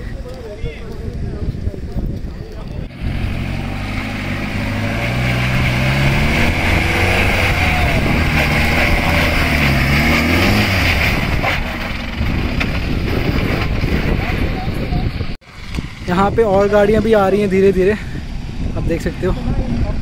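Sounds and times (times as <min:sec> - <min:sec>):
suv engine revving: 0:02.8 - 0:14.2.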